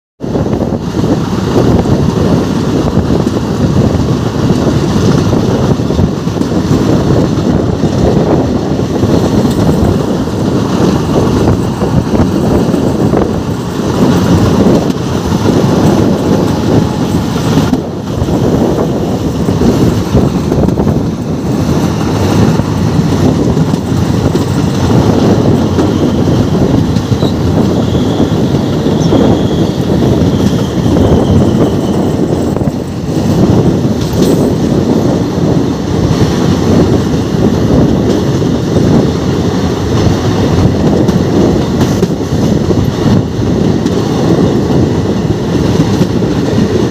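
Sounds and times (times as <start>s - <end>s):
train rumbling on track: 0.2s - 46.9s
wind buffeting microphone: 0.2s - 46.9s
faint high squeal: 27.2s - 32.3s.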